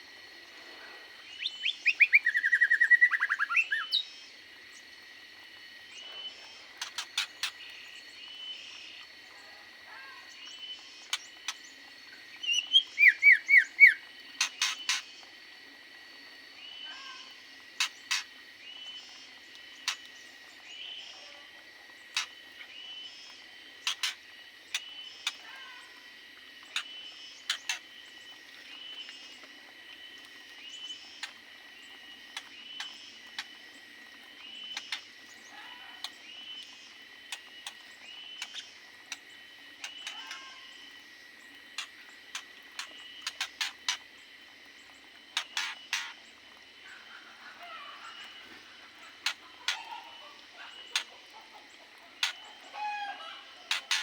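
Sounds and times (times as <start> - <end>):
small birds chirping: 5.9 - 15.3, 22.0 - 29.5, 30.6 - 54.0.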